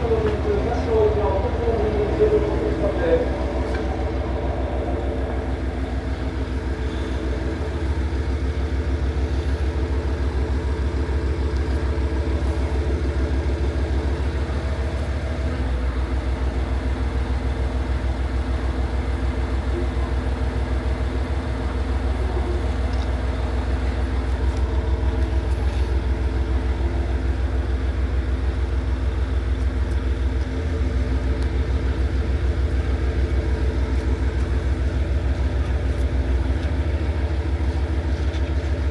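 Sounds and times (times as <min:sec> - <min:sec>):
diesel railcar engine humming: 0:00.0 - 0:38.9.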